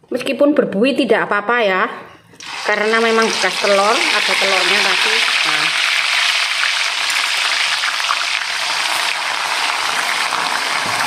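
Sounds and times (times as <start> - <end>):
spice paste sizzling in oil: 2.4 - 11.0.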